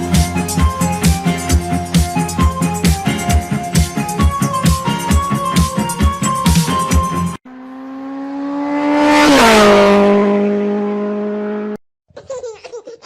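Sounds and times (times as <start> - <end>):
fast vehicle passing by: 7.5 - 11.8.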